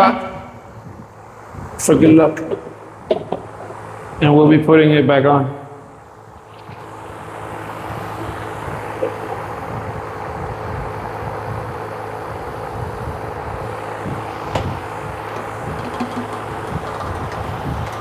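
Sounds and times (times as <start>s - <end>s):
air compressor running: 0.5s - 4.3s, 5.6s - 18.0s.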